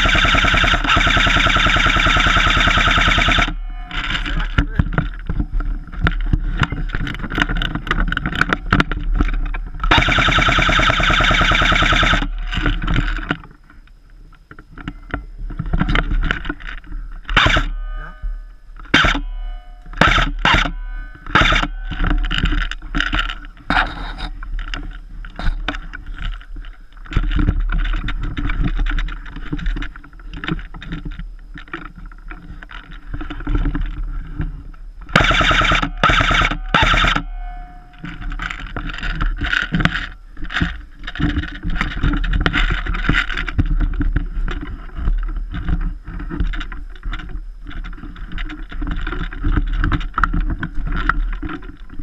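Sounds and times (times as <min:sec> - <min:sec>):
airsoft gun full-auto burst: 0:00.0 - 0:04.2, 0:09.9 - 0:12.4, 0:17.4 - 0:17.7, 0:18.9 - 0:19.2, 0:20.0 - 0:21.8, 0:35.1 - 0:37.3.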